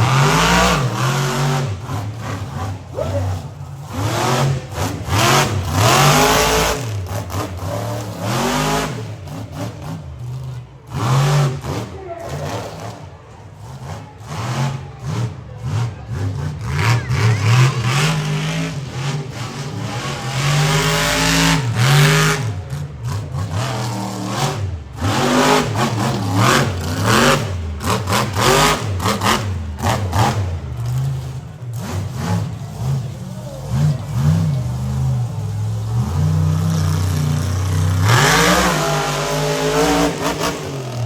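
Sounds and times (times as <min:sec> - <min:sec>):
truck engine revving hard: 0:00.0 - 0:41.0.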